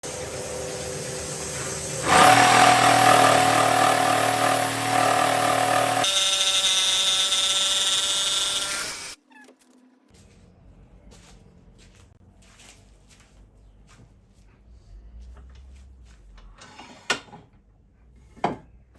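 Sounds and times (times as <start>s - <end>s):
power tools cutting wood: 0.0s - 9.2s.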